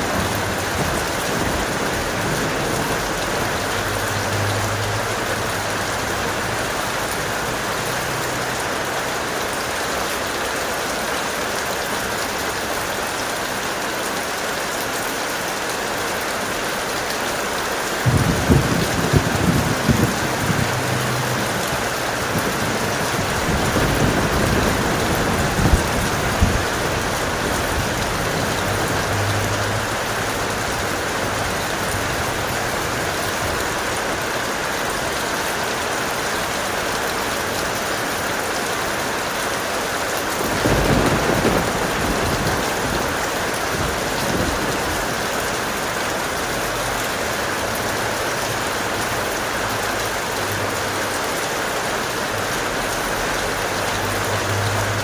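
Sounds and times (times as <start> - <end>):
low rumble of thunder: 0.0 - 5.3, 18.0 - 32.5, 40.4 - 45.4
heavy rain: 0.0 - 55.0.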